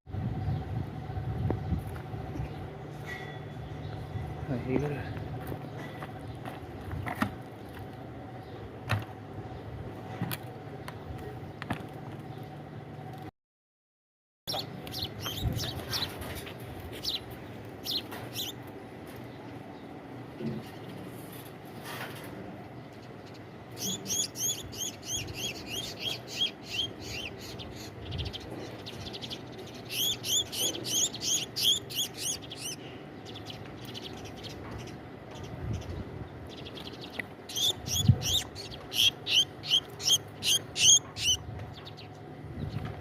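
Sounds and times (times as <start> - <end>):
sparrow chick chirping rapidly: 14.5 - 16.2, 17.0 - 18.6, 23.2 - 42.2.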